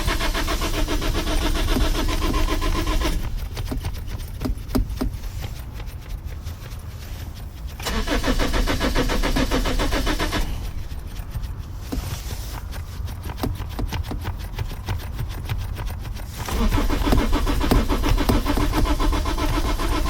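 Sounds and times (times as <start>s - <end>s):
steady low rumble: 0.0s - 13.2s
car starter cranking engine: 0.0s - 20.0s
sharp clicks: 0.0s - 20.0s.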